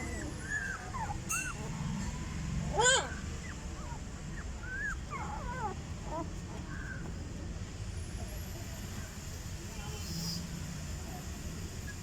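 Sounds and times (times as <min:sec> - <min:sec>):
dog whimpering: 0:00.0 - 0:07.0
dog yelping: 0:00.0 - 0:07.1.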